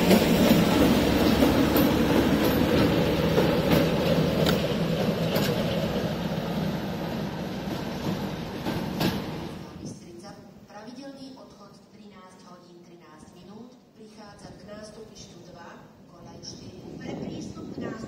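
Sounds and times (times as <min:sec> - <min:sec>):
wheels clicking over rail joints: 0:00.0 - 0:06.2.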